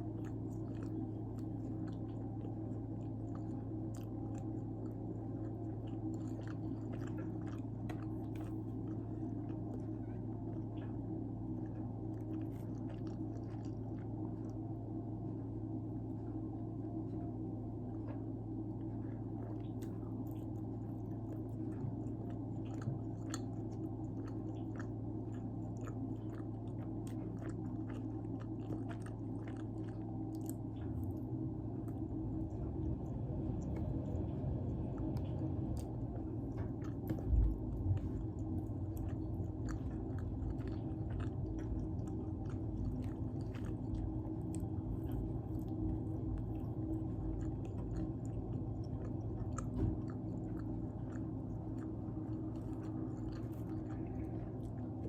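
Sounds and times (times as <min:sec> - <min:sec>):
person chewing pizza: 0:00.0 - 0:55.0
steady low hum: 0:00.0 - 0:55.0.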